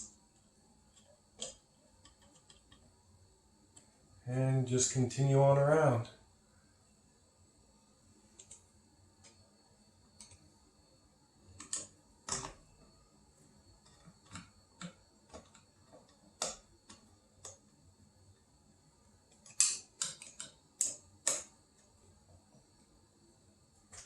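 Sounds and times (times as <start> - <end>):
screwdriver clicks and taps: 0.9 - 2.8, 19.3 - 21.5.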